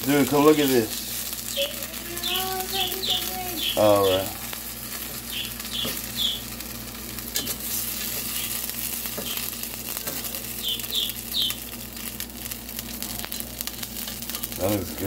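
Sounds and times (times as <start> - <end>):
pizza sizzling in a pan: 0.0 - 15.0
pet bird chirping: 1.4 - 4.4, 5.2 - 6.5, 9.2 - 9.6, 10.3 - 11.7
spatula scraping and tapping pan: 7.3 - 10.4.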